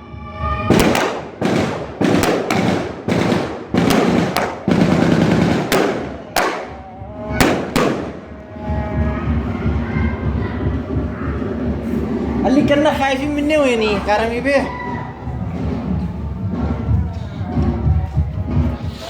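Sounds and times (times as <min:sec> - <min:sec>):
gunshots with echo: 0:00.7 - 0:08.4.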